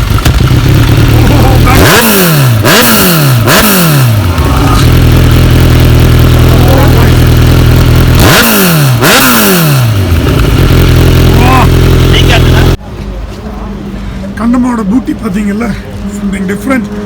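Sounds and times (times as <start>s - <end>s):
motorcycle engine idling: 0.0s - 12.8s
motorcycle engine revving: 0.0s - 12.8s.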